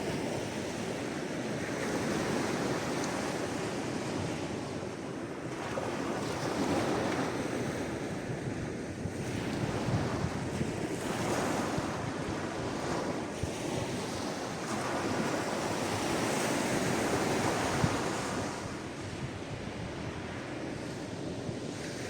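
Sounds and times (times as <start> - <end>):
wind noise on microphone: 0.0 - 22.0.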